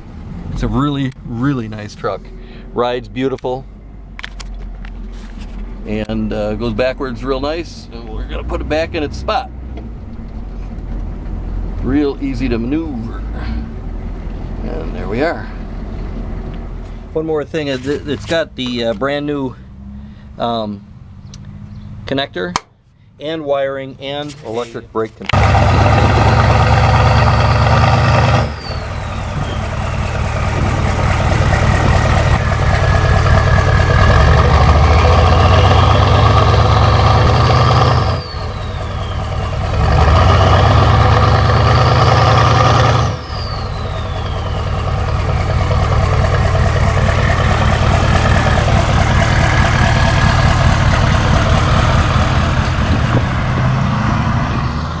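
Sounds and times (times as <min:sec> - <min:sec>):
diesel truck engine under load: 0:00.0 - 0:55.0
turbo whine: 0:25.4 - 0:55.0.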